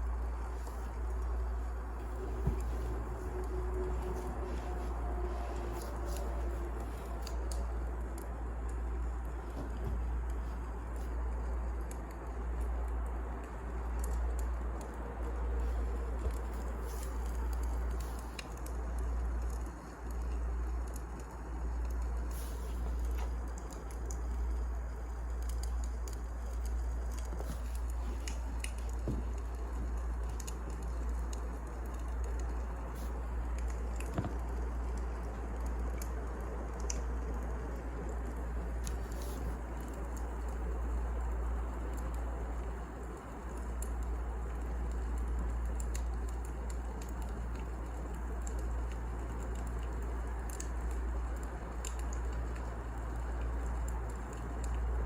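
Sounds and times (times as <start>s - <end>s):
low fire rumble: 0.0s - 55.0s
wood fire crackling and popping: 0.0s - 55.0s.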